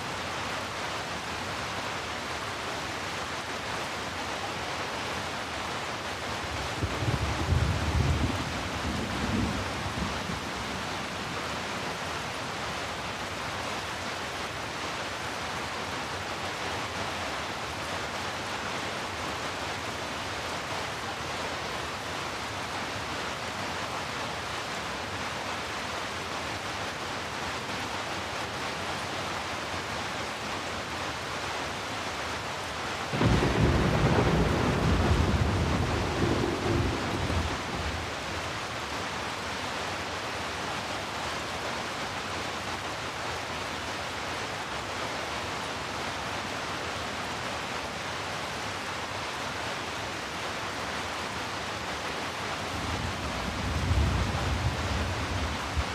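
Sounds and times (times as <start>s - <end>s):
heavy rain: 0.0s - 55.9s
thunder rumbling: 33.2s - 38.2s, 52.8s - 55.9s.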